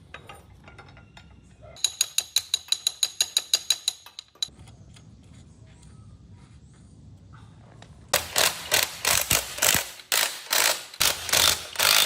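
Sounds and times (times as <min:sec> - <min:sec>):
ratchet wrench clicking: 0:08.2 - 0:12.0.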